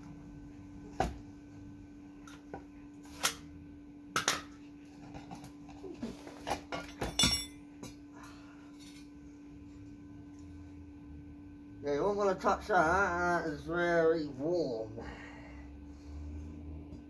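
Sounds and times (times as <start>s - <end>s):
steady low hum: 0.0s - 17.0s
metal knocks and clinks: 6.7s - 7.7s.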